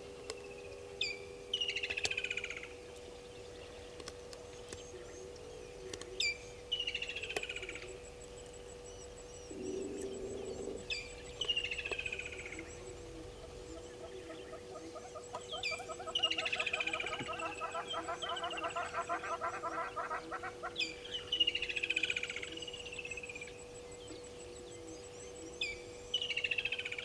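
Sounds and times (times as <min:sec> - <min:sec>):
steady low hum: 0:00.0 - 0:27.0
songbird whistle and trill: 0:08.8 - 0:27.0.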